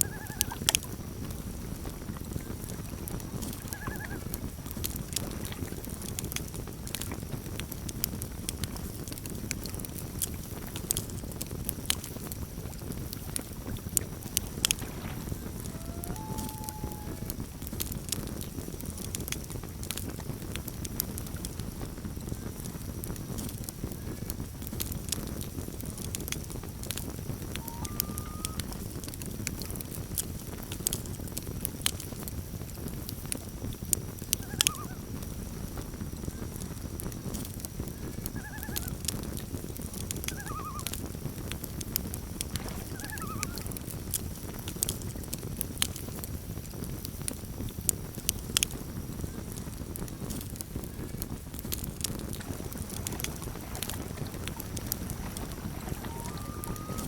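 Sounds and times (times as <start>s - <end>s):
loon calls: 0.0s - 0.7s, 3.6s - 4.3s, 14.8s - 17.5s, 27.5s - 28.8s, 34.4s - 35.0s, 38.3s - 39.0s, 40.2s - 41.0s, 42.8s - 43.7s, 53.7s - 57.0s
campfire crackling: 0.0s - 57.0s.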